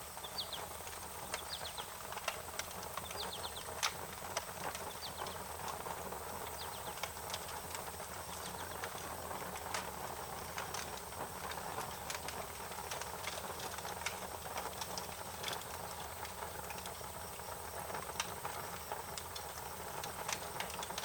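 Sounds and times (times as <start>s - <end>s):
wood fire crackling: 0.0s - 21.0s
bird chirping: 0.2s - 0.7s, 1.3s - 1.9s, 3.0s - 3.7s, 6.5s - 7.0s.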